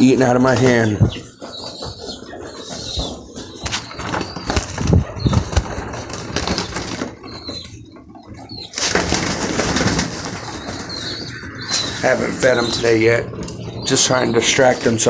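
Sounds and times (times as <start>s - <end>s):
pigeons scuffling: 0.0s - 15.0s
pigeons flapping wings: 0.5s - 13.5s.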